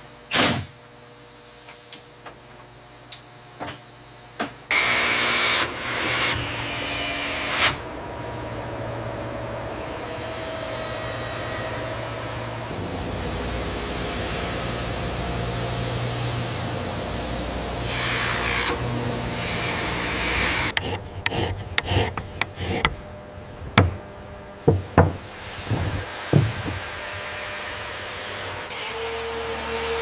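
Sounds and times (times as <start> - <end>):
rushing rasping work noise: 9.7 - 30.0
sharp irregular knocks and clicks: 20.7 - 23.0, 23.8 - 24.0, 24.7 - 25.2, 26.3 - 26.8.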